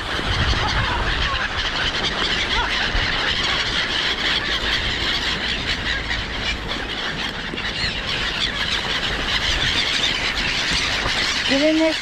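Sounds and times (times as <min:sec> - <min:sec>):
many birds squealing: 0:00.0 - 0:12.0
wind rumbling on microphone: 0:00.0 - 0:12.0.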